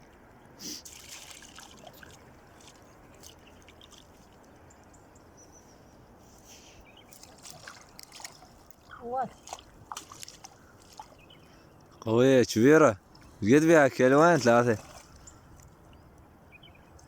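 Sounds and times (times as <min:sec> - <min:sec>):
small knocks and splashes: 0:00.8 - 0:05.0, 0:07.1 - 0:12.0, 0:14.4 - 0:15.8
dripping and trickling water: 0:00.9 - 0:05.3, 0:07.1 - 0:12.1.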